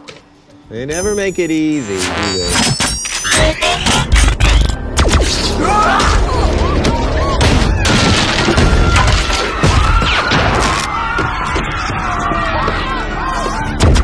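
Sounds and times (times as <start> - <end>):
booms and crashing impacts: 7.4 - 10.8.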